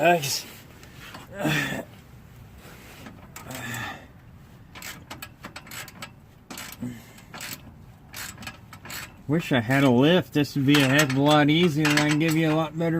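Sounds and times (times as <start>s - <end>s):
person grunting: 1.3s - 1.9s
metal tools clicking and scraping: 4.7s - 10.0s, 10.6s - 12.9s.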